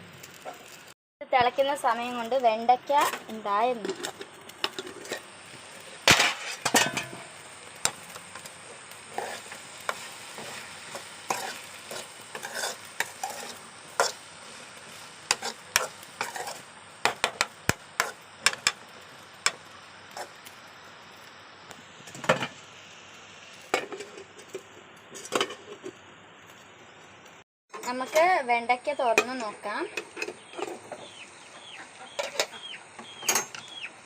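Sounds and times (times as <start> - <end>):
food hissing in pot: 3.0 - 25.9
spoon scraping cooking pot: 9.1 - 14.2.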